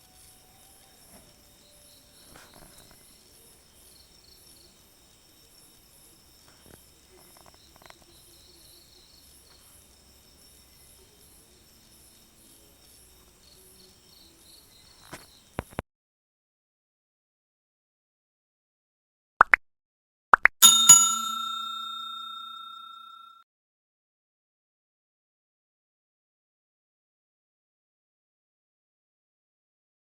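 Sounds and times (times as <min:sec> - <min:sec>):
insects chirping: 0:00.0 - 0:15.8.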